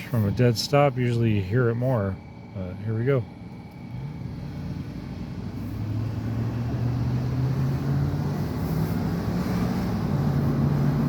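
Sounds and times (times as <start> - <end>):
car engine accelerating: 3.6 - 11.0.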